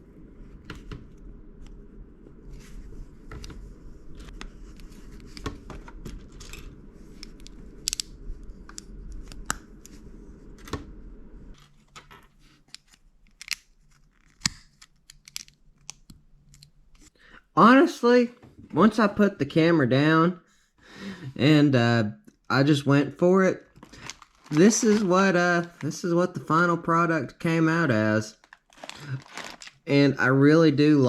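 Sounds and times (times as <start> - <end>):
steady low hum: 0.0 - 31.0
plastic bricks clicking together: 14.4 - 16.7.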